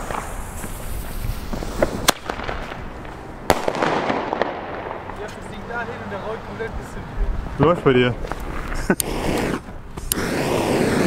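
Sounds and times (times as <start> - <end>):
firework bangs: 0.0 - 5.7, 8.2 - 11.0
fuse sparking: 8.8 - 11.0.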